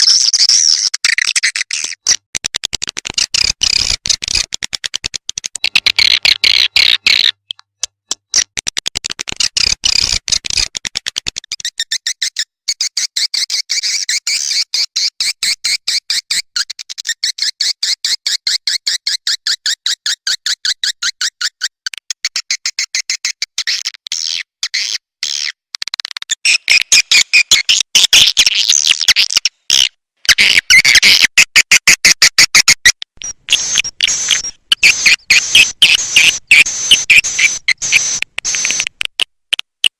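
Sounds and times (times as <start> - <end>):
swiftlet chirping twitters: 33.2 - 38.9.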